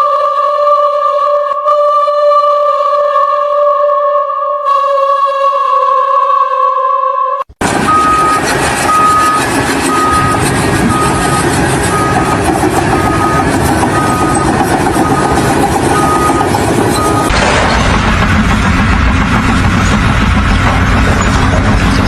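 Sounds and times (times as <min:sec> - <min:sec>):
reversing alarm beeping: 0:00.0 - 0:21.5
heavy vehicle engine noise: 0:07.5 - 0:22.0.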